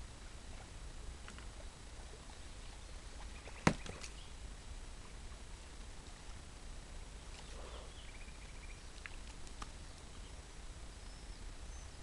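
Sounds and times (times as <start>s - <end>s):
low outdoor rumble: 0.0s - 12.0s
faint bird chirps: 2.2s - 4.4s, 7.3s - 9.1s, 9.8s - 10.4s, 11.0s - 12.0s.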